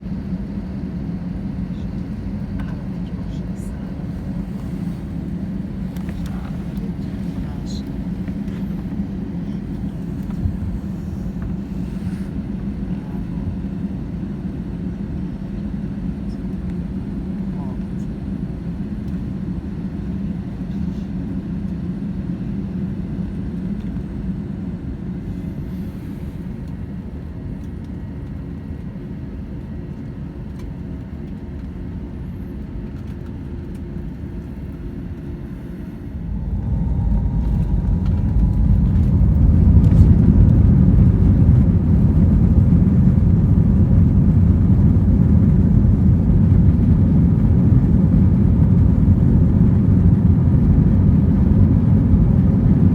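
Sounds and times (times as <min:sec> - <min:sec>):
jet engines spooling up: 0:35.2 - 0:52.7.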